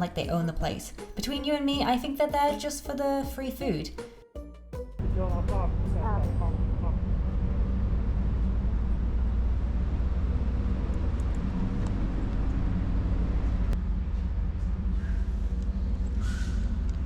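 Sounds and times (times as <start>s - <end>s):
low engine rumble: 5.0s - 17.0s.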